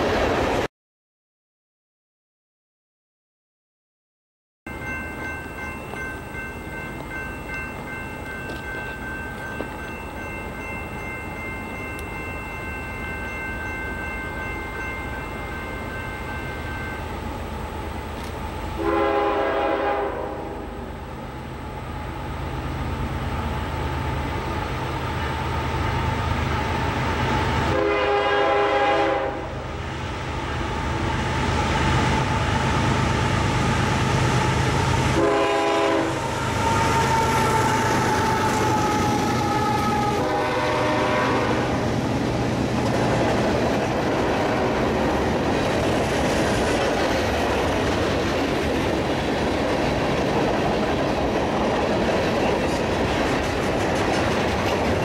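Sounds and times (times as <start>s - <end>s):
diesel locomotive engines running: 4.8s - 55.0s
train horn blasts: 18.8s - 20.8s, 27.7s - 29.7s, 35.1s - 41.9s, 44.1s - 45.0s
train wheels clacking over rail joints: 42.7s - 55.0s.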